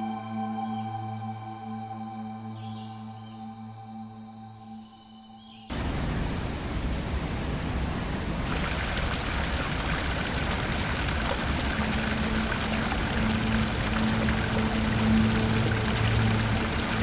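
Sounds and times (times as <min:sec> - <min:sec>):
flowing water rushing: 0:08.4 - 0:17.0.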